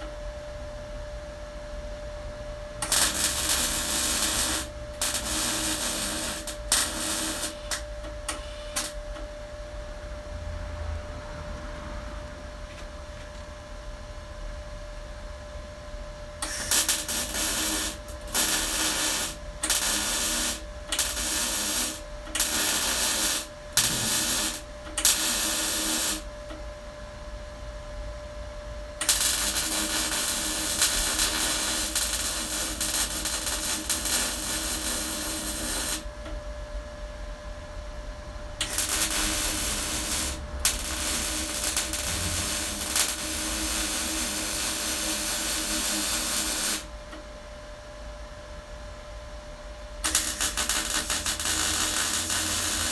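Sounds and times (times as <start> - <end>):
welder arc crackling: 2.8 - 9.0, 16.4 - 26.3, 29.0 - 36.2, 38.6 - 47.2, 50.0 - 52.9.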